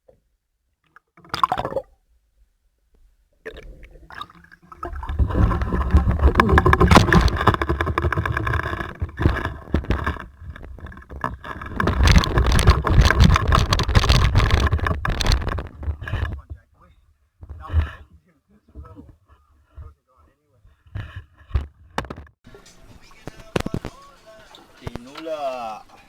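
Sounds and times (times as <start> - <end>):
water rushing: 4.1 - 15.7, 22.5 - 26.0
boat engine rumbling: 4.7 - 18.2.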